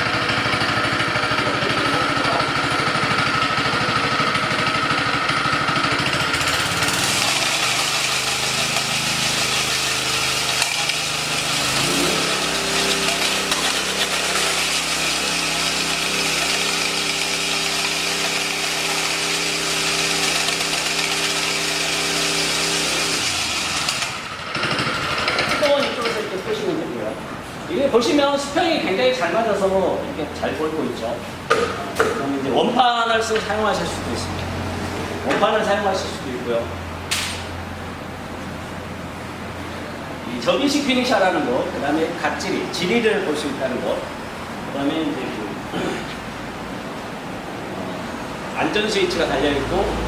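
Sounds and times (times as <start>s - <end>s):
power trowel engine running: 0.0s - 26.2s.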